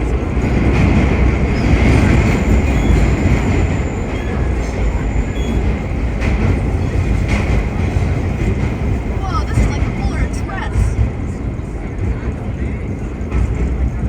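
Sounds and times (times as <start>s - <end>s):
subway train wheels rumbling: 0.0s - 14.0s
high-pitched wheel squeals: 1.6s - 6.0s.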